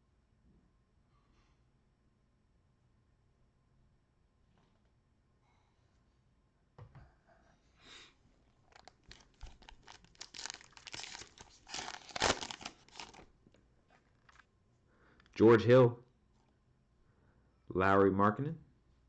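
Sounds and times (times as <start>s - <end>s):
plastic wrapper crinkling: 8.6s - 14.5s.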